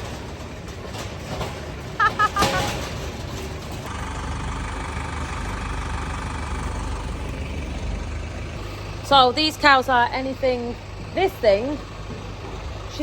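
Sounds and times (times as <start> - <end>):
engine idling: 1.9 - 13.0
high chirps: 2.0 - 2.8.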